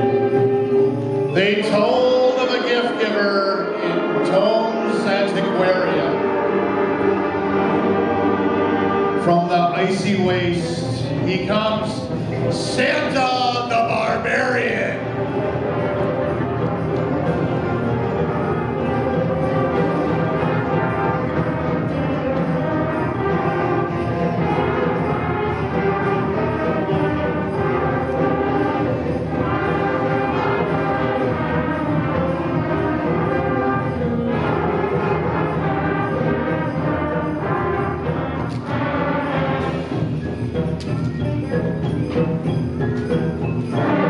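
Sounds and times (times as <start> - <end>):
concert band playing: 0.0 - 44.0
percussion strikes: 0.0 - 44.0.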